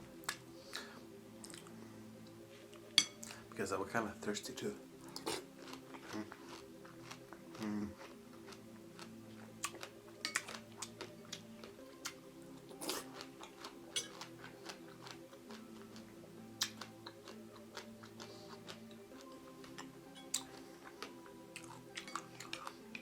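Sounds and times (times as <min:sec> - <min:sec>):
faint background music: 0:00.0 - 0:23.0
wet chewing clicks: 0:16.6 - 0:23.0.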